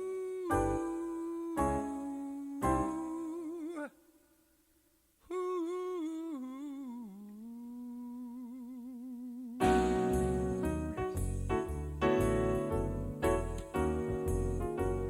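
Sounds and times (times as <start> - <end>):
man singing wordless vibrato: 0.0 - 4.6, 5.2 - 11.4.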